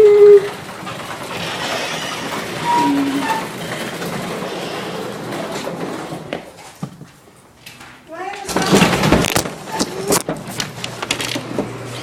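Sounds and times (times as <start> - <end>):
garage door opener rumbling: 0.0 - 12.0
door squeak: 1.3 - 5.5.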